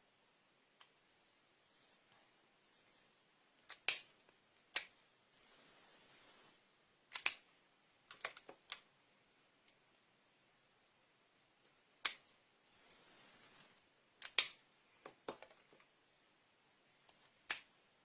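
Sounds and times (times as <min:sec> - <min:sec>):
scratchy hiss: 0:00.8 - 0:04.2, 0:04.8 - 0:07.6, 0:12.0 - 0:14.5
plastic marker clicks: 0:03.7 - 0:05.0, 0:07.1 - 0:07.4, 0:08.1 - 0:08.8, 0:14.2 - 0:14.6.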